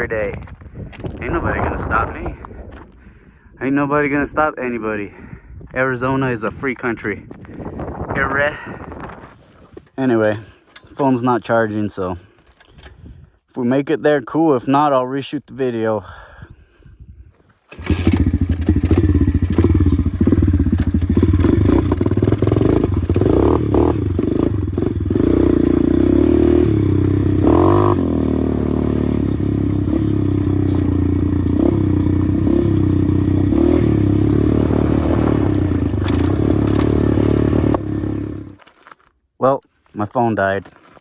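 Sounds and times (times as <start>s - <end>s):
motorbike engine revving: 17.7s - 38.6s.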